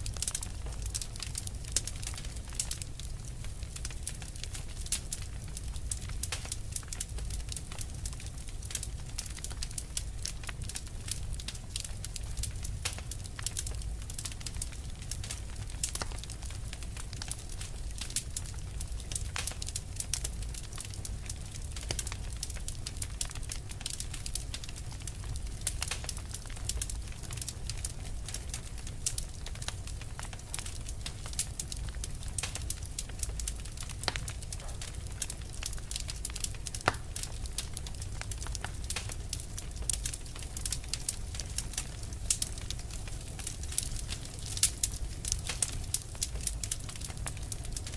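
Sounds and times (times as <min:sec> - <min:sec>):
fire crackling: 0:00.0 - 0:47.9.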